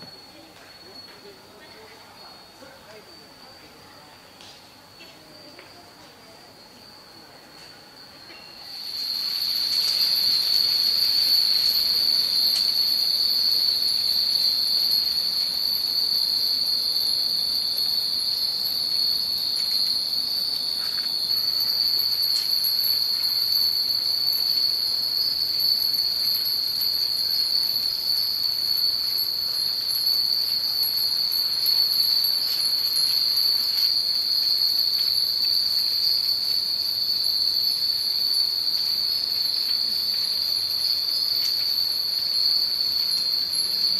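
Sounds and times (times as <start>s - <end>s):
wind chimes ringing: 0.0s - 3.9s, 6.4s - 43.9s.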